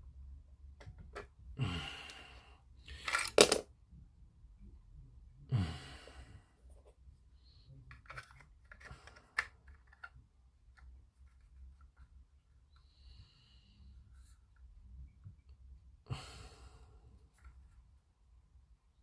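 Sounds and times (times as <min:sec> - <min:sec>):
breathy sighs: 0:01.6 - 0:03.1, 0:05.5 - 0:06.6, 0:16.1 - 0:17.2
plastic parts clicking: 0:03.0 - 0:03.6, 0:07.9 - 0:10.2.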